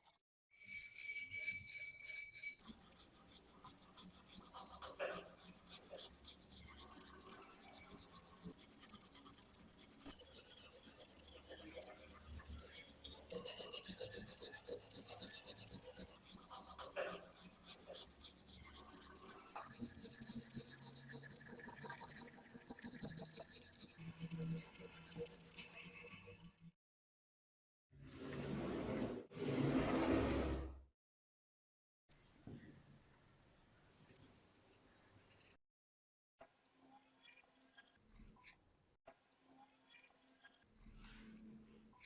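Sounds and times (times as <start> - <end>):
scraping on rusted metal: 12.5 - 20.6.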